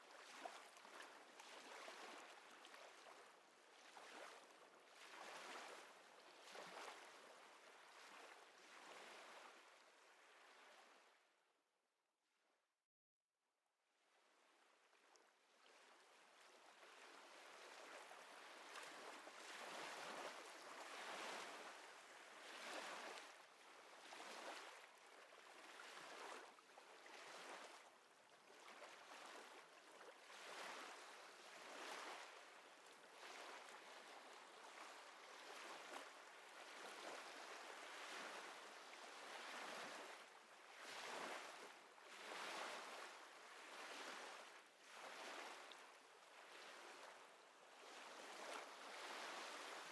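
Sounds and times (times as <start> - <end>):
small waves lapping: 28.5 - 47.2, 47.8 - 49.9.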